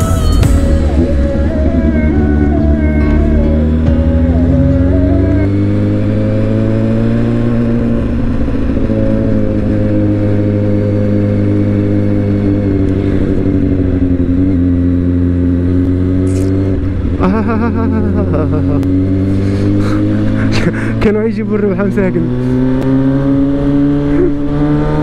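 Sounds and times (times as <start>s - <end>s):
motorcycle engine cruising: 0.0s - 25.0s.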